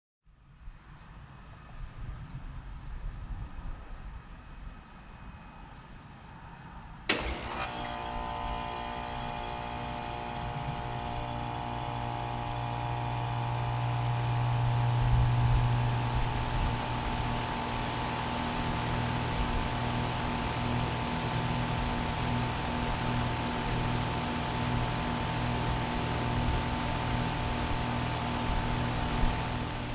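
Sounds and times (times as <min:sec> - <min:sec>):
heat pump running hum: 0:07.1 - 0:29.9.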